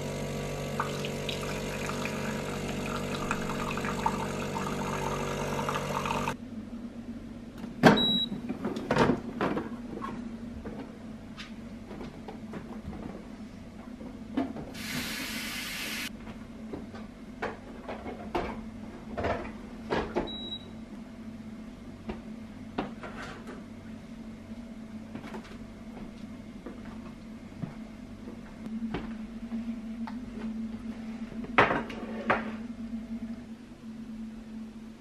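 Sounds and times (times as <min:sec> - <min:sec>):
appliance hum: 0:00.0 - 0:35.0
hiss: 0:14.8 - 0:16.1.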